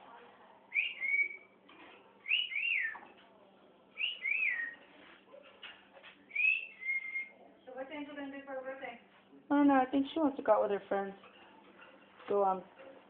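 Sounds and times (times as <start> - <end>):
cockatiel whistling: 0.7 - 1.4, 2.2 - 3.0, 4.0 - 4.8, 6.3 - 7.3.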